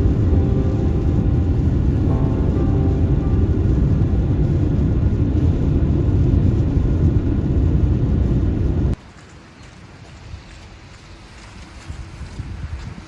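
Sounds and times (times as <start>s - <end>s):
car driving on road: 0.0s - 9.0s.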